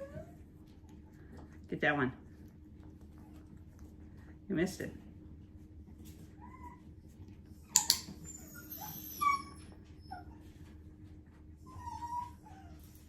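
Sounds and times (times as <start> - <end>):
puppy whimpering: 0.0 - 0.5, 6.2 - 10.8, 11.6 - 13.0.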